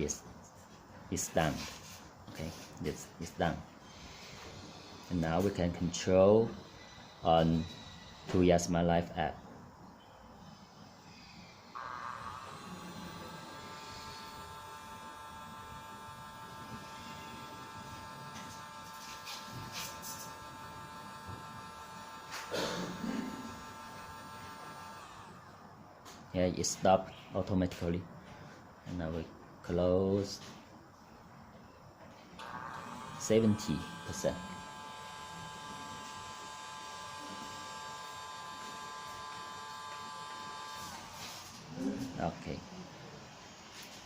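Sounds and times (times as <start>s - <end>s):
electric motor whine: 11.1s - 25.6s, 32.4s - 41.7s.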